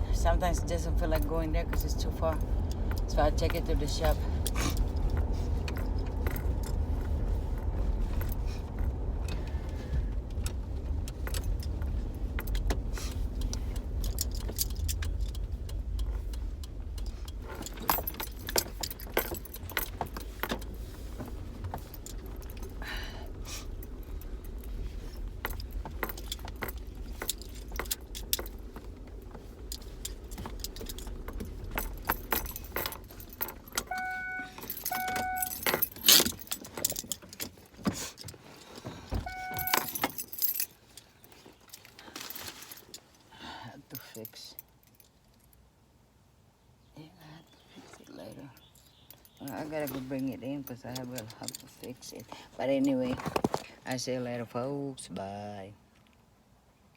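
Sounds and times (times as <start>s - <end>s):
car road and engine rumble: 0.0s - 56.9s
keys jangling: 0.4s - 8.9s, 11.2s - 43.3s, 48.3s - 53.0s
short beeps: 33.8s - 35.5s, 39.2s - 39.9s.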